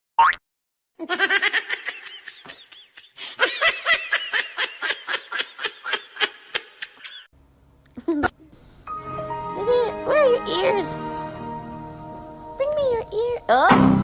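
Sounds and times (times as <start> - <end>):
high-pitched laughter: 1.0 - 7.3.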